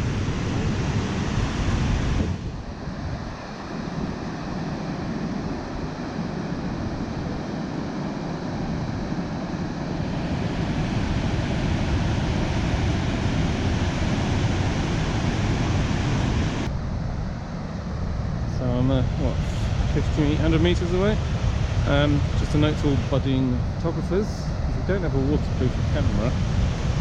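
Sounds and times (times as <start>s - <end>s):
waterfall roar: 3.3s - 16.7s, 18.8s - 24.2s.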